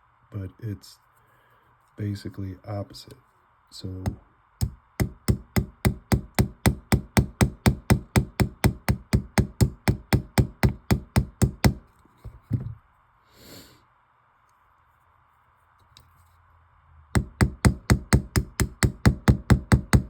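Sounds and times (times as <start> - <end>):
small hammer tapping pin: 4.1 - 11.8.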